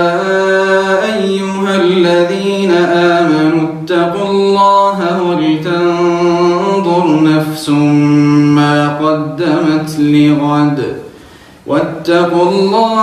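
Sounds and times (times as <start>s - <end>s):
man chanting: 0.0s - 13.0s
breath: 11.0s - 11.7s.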